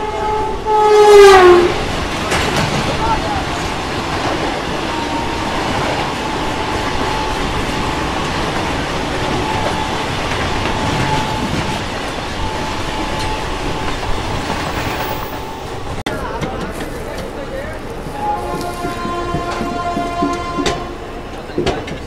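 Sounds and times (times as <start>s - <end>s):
train wheels on rails: 0.0s - 22.0s.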